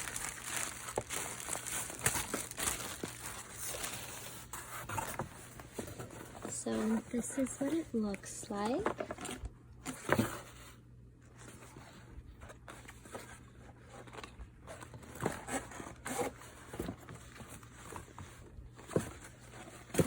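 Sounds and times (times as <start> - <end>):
backpack material rustling: 0.0 - 4.2.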